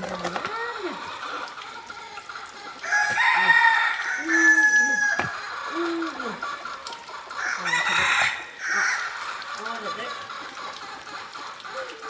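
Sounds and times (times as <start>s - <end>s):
rooster crowing: 2.8s - 5.3s, 7.4s - 9.2s.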